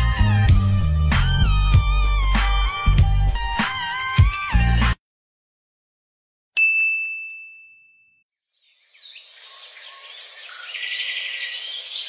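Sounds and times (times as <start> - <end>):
bell ding: 6.6 - 8.2
birds chirping: 8.5 - 12.0.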